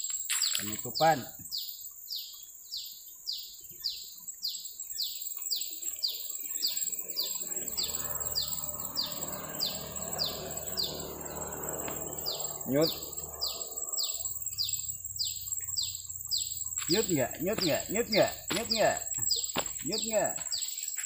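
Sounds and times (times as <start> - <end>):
high-pitched insect-like hiss: 0.0 - 21.0
bird calling with downward notes: 6.0 - 20.8.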